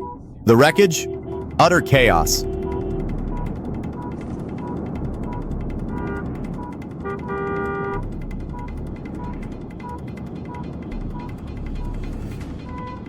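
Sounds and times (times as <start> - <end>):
low rumble of vehicles: 0.0 - 1.6, 2.4 - 13.0
car horn: 0.0 - 9.4
rapid clicking: 2.4 - 12.6.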